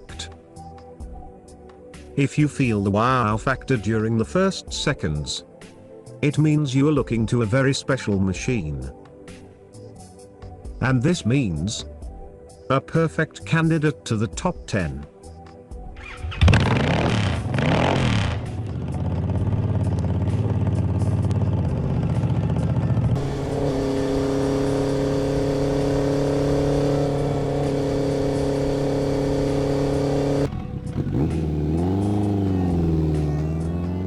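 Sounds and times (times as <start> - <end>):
motorcycle engines revving: 16.0 - 34.0.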